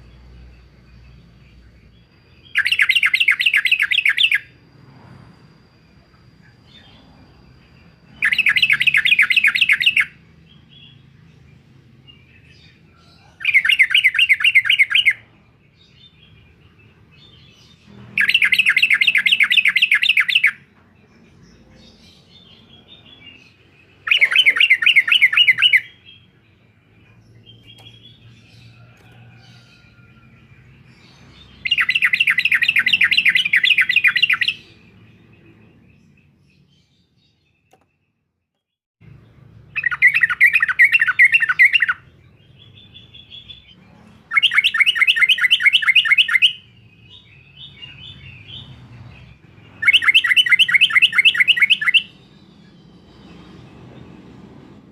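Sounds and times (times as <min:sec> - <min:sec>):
bulbul chattering calls: 0:24.0 - 0:26.3, 0:39.8 - 0:48.7, 0:49.8 - 0:52.8.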